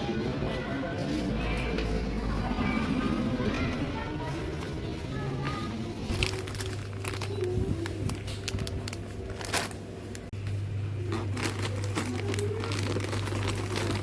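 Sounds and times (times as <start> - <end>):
packaging crinkling and rustling: 6.0 - 14.0.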